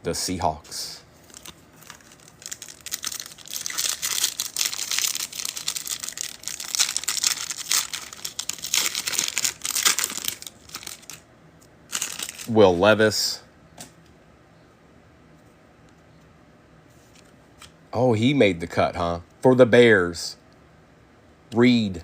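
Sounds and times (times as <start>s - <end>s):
foil wrapper crinkling and tearing: 1.2s - 11.2s, 11.9s - 12.6s.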